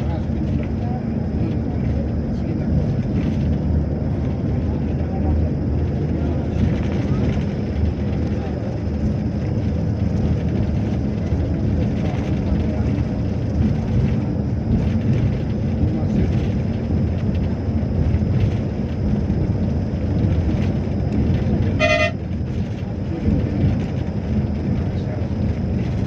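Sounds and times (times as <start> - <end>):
train rumbling: 0.0 - 26.0
train horn toot: 21.6 - 22.3.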